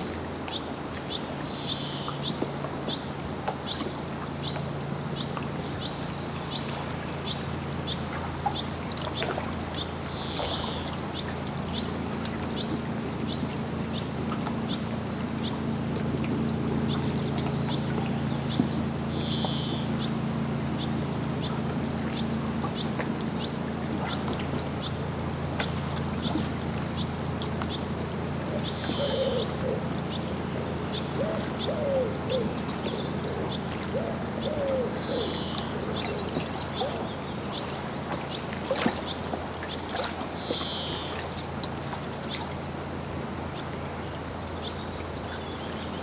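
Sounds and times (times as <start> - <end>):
steady low hum: 0.0 - 46.0
water lapping: 0.0 - 46.0
small bird calling: 16.8 - 24.9, 25.5 - 39.1, 40.4 - 41.4.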